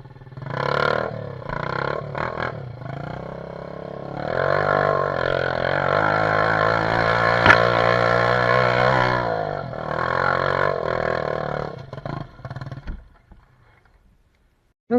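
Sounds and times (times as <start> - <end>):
dirt bike engine revving: 0.0 - 12.8
sharp knock: 7.4 - 7.9.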